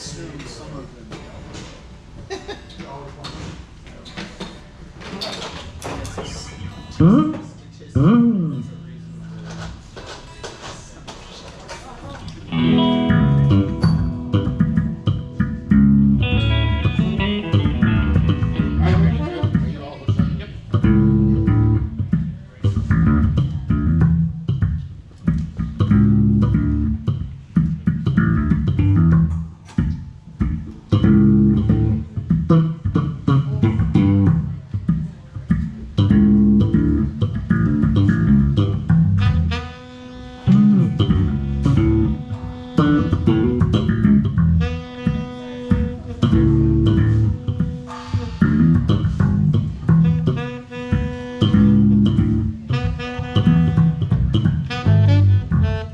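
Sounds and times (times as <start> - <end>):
guitar playing: 7.0 - 9.7, 12.4 - 55.9
plucked bass guitar line: 7.0 - 9.7, 12.5 - 39.8, 40.4 - 55.9
long held notes: 12.5 - 19.4, 36.0 - 55.9.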